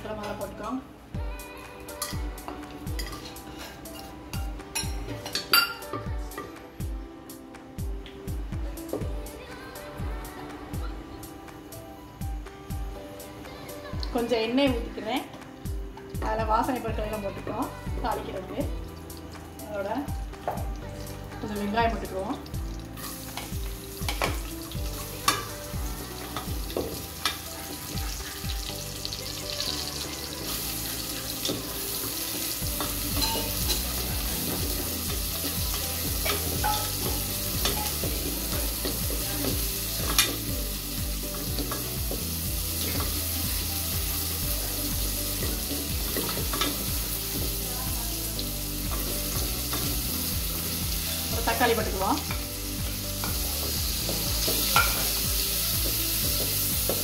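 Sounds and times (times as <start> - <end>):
onions sizzling in hot oil: 12.7 - 57.0.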